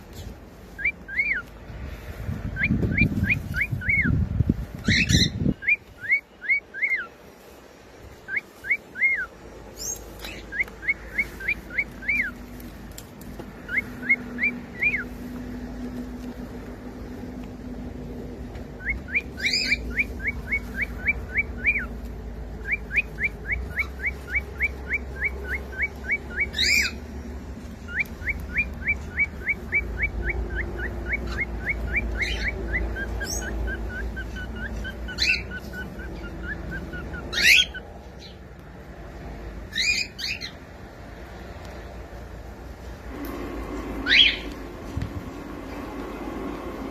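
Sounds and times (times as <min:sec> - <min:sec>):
cockatiel whistling and chirping: 0:00.8 - 0:01.5, 0:02.6 - 0:04.2, 0:04.8 - 0:07.1, 0:08.3 - 0:12.4, 0:13.7 - 0:15.1, 0:18.8 - 0:21.9, 0:22.6 - 0:27.0, 0:27.9 - 0:37.8
sharp high bird calls: 0:08.3 - 0:12.4, 0:18.8 - 0:21.9, 0:27.9 - 0:37.8.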